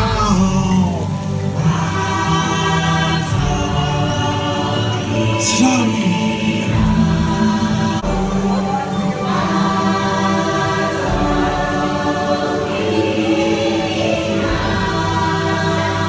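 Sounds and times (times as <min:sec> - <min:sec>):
choir singing held chords: 0:00.0 - 0:16.0
music: 0:00.0 - 0:16.0.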